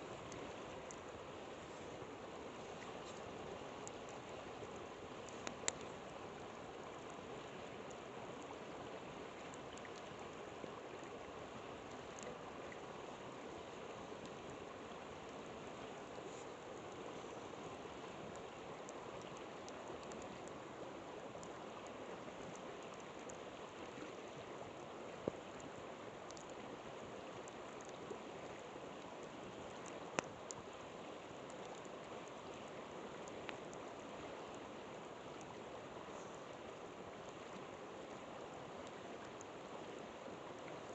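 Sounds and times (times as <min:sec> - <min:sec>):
campfire crackling and popping: 0:02.8 - 0:07.0, 0:18.3 - 0:20.6, 0:25.1 - 0:26.7.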